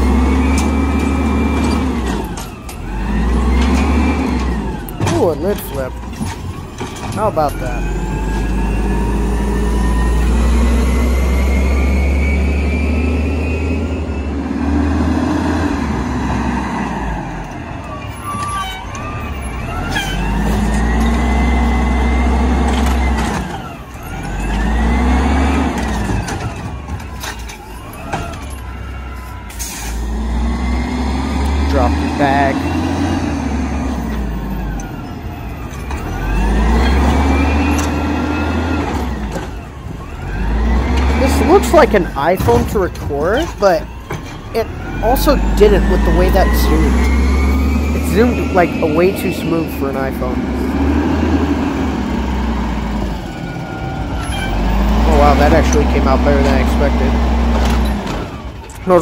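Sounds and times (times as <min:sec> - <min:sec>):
garbage truck diesel engine: 0:00.0 - 0:59.0
rising hydraulic whine: 0:07.5 - 0:42.5, 0:44.2 - 0:58.2.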